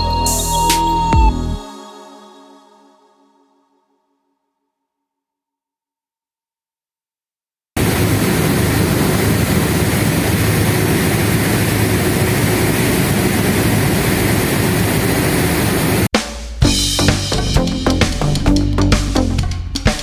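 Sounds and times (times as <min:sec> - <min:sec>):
boat engines droning: 0:07.8 - 0:16.0
rushing water noise: 0:07.8 - 0:16.0.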